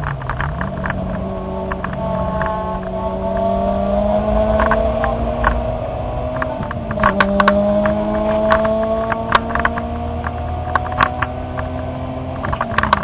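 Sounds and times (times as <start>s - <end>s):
car engine accelerating: 0.0s - 13.0s
sharp clicks and rattles: 0.0s - 13.0s.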